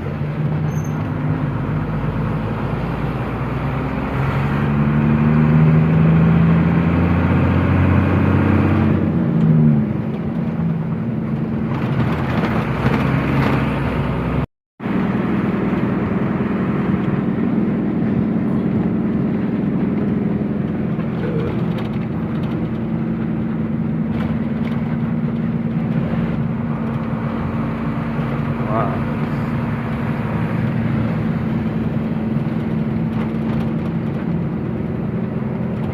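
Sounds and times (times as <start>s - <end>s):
truck engine running: 9.1s - 35.9s.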